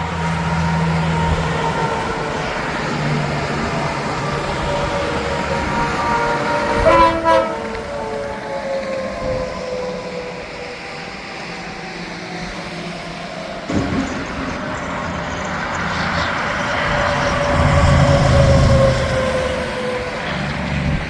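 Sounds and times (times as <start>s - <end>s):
truck low rumble: 0.0s - 9.4s, 13.4s - 21.0s
highway traffic: 0.0s - 21.0s.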